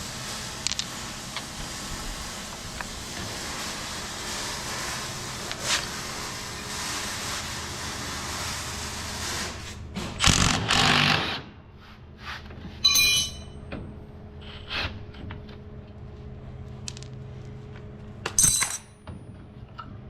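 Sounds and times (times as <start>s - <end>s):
metal part clinking: 12.8s - 13.6s, 18.4s - 19.0s.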